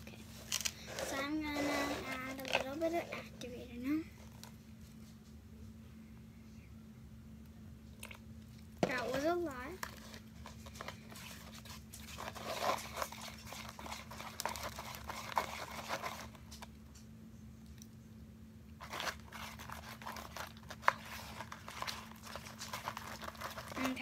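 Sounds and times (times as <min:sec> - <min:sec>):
slime being mixed by hand: 0:00.0 - 0:04.6, 0:07.9 - 0:16.7, 0:18.8 - 0:24.0.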